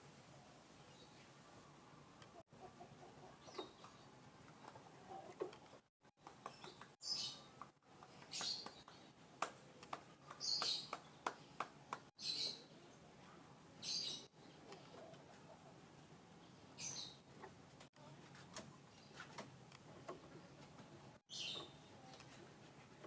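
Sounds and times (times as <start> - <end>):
caged songbird chirping: 0.8 - 5.3, 6.2 - 13.0, 13.7 - 17.6, 21.2 - 22.1.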